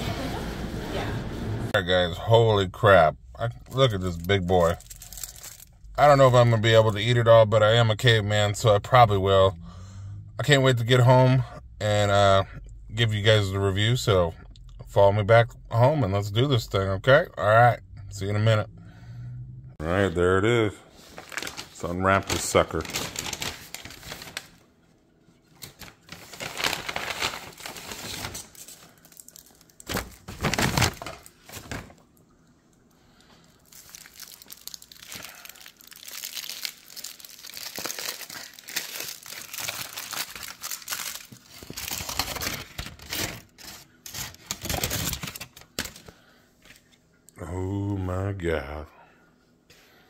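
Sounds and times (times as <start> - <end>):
foil wrapper crinkling and tearing: 3.8 - 7.4, 21.2 - 24.6, 25.6 - 32.0, 33.4 - 46.1.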